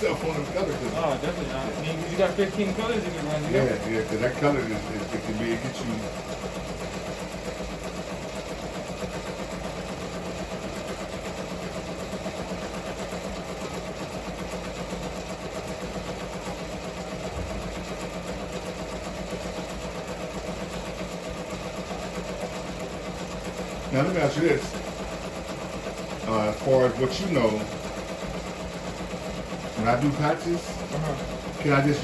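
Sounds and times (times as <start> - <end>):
embroidery machine stitching: 0.0 - 32.0.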